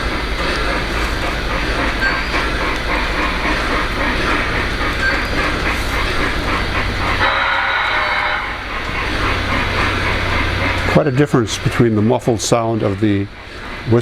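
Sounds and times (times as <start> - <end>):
model train rumbling on track: 0.0 - 14.0
train whistle blowing: 7.2 - 8.7.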